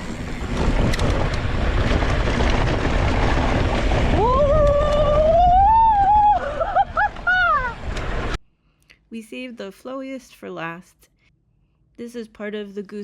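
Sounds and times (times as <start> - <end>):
wind buffeting microphone: 0.0 - 8.4
rider whooping: 4.0 - 8.1.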